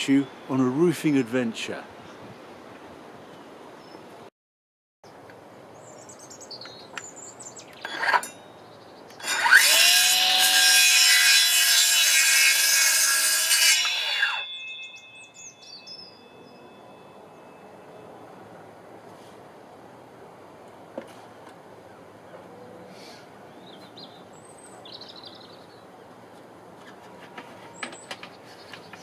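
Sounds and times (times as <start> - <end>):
small birds chirping: 5.8 - 9.3, 23.5 - 25.9
power saw cutting timber: 9.2 - 14.5.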